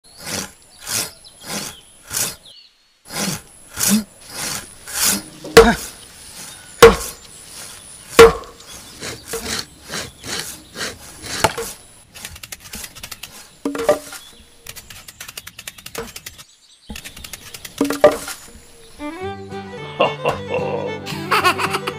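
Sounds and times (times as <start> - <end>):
hand saw cutting wood: 0.1 - 2.4, 3.1 - 15.2, 16.9 - 19.0
sharp wooden knocks: 3.9 - 6.0, 6.8 - 7.2, 8.2 - 10.4, 11.2 - 11.7, 12.3 - 18.5.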